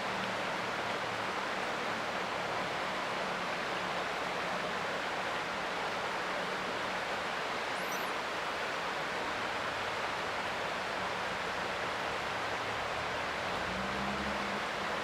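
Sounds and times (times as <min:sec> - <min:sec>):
creek water flowing: 0:00.0 - 0:15.0
faint high chirp: 0:07.7 - 0:08.2.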